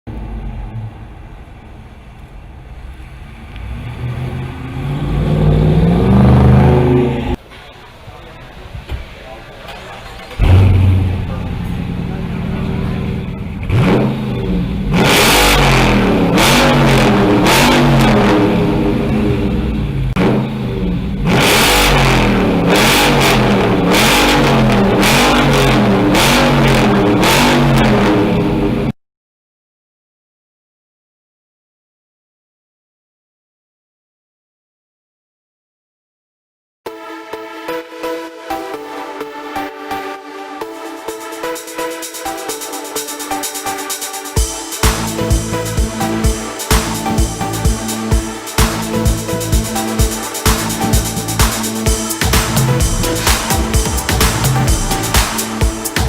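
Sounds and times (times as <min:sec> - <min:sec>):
car exhaust revving: 0:00.1 - 0:07.4, 0:10.3 - 0:28.9, 0:40.8 - 0:56.0.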